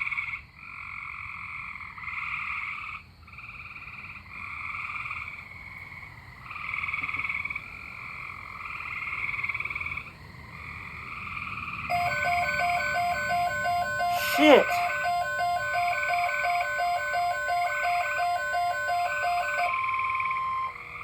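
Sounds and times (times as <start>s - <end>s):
weather radio electronic tones: 11.9s - 21.0s.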